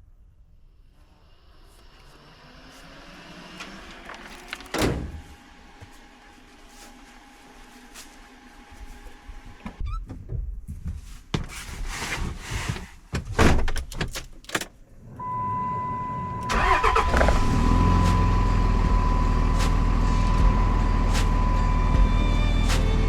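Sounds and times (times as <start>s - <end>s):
engine starting and idling: 15.2s - 22.0s
steady high electronic tone: 17.4s - 22.7s.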